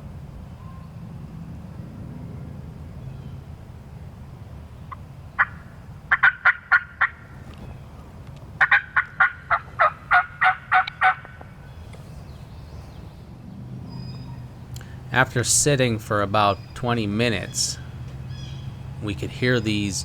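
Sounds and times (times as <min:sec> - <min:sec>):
young turkeys yelping: 0:05.4 - 0:07.2, 0:08.6 - 0:11.4, 0:13.9 - 0:15.0, 0:15.6 - 0:20.0.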